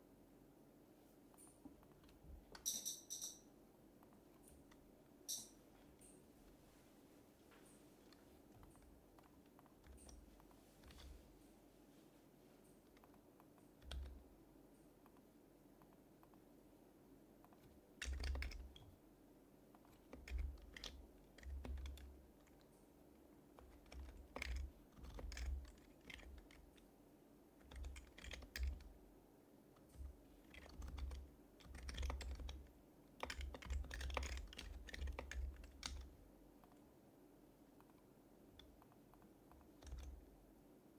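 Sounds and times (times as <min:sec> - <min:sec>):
keyboard typing: 0:01.8 - 0:03.4, 0:07.6 - 0:11.3, 0:12.8 - 0:14.3, 0:17.5 - 0:19.0, 0:19.8 - 0:22.7, 0:23.4 - 0:26.9, 0:27.6 - 0:29.0, 0:29.8 - 0:36.8, 0:37.8 - 0:40.3.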